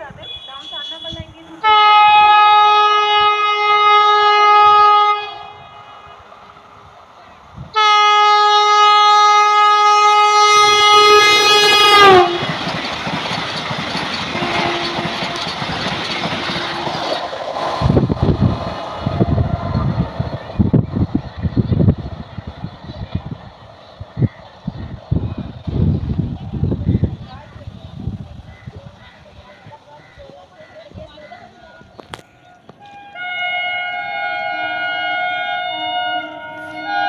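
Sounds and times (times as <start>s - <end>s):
rush of passing train: 0.0s - 37.0s
train horn blasts: 0.2s - 6.3s, 7.7s - 12.6s, 14.3s - 15.6s, 16.5s - 17.1s, 32.8s - 37.0s
low gusty thumps: 10.9s - 28.5s.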